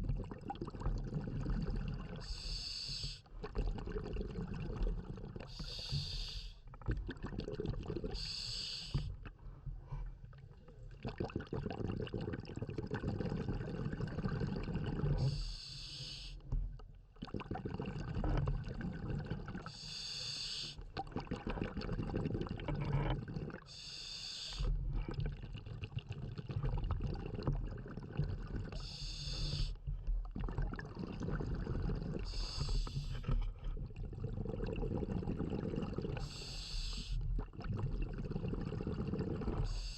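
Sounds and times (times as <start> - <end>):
bubbling exhalations: 0.0 - 9.4, 10.7 - 15.5, 17.2 - 19.9, 20.7 - 23.8, 24.4 - 39.9
regulator hissing inhalations: 2.3 - 3.2, 5.5 - 6.6, 8.2 - 9.1, 15.2 - 16.4, 19.8 - 20.8, 23.7 - 24.7, 28.8 - 29.8, 32.3 - 33.2, 36.2 - 37.2.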